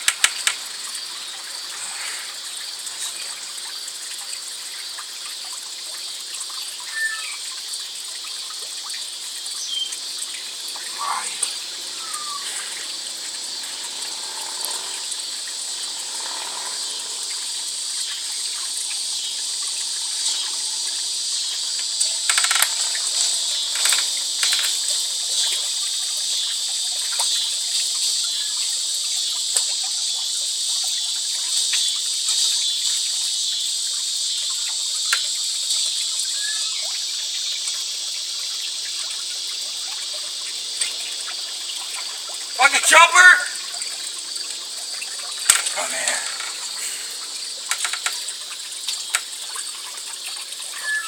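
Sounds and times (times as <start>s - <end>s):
sharp clicks: 0.0s - 0.6s, 22.3s - 23.0s
insect chorus: 0.0s - 51.0s.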